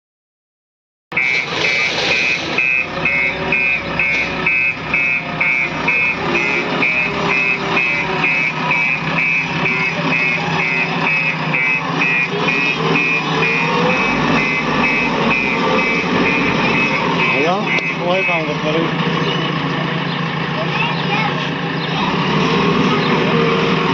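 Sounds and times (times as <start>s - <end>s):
vehicle reversing alarm beeping: 1.1s - 20.2s
engine running: 1.1s - 23.9s.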